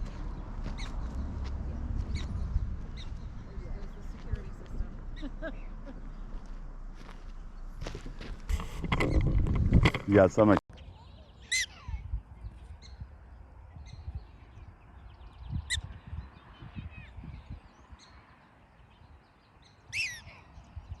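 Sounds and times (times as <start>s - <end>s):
prairie dogs chirping barks: 2.1s - 6.2s, 10.9s - 13.0s, 19.6s - 20.9s.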